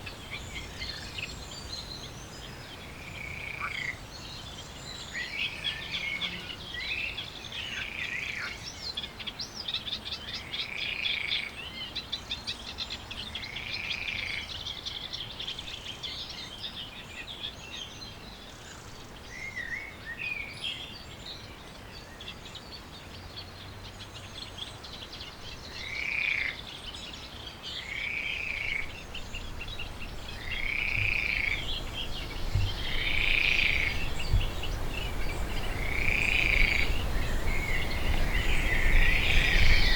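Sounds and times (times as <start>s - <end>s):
fast trilled birdsong: 23.7s - 39.9s.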